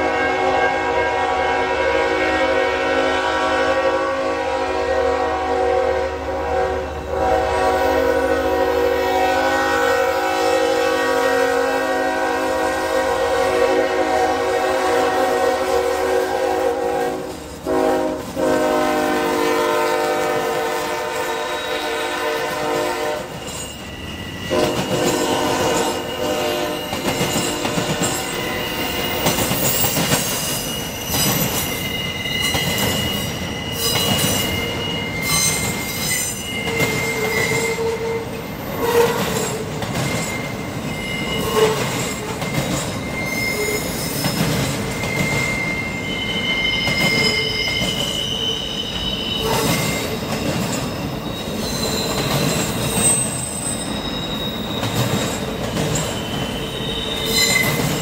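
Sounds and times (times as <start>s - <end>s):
faint train horn: 0.0s - 23.4s, 24.4s - 29.4s, 32.8s - 39.7s, 40.4s - 42.5s, 45.0s - 50.2s
train rumbling past: 0.0s - 58.0s
train wheels squealing: 21.3s - 58.0s
rail joints clicking: 23.3s - 31.8s, 32.4s - 45.7s, 49.4s - 54.0s, 54.6s - 58.0s.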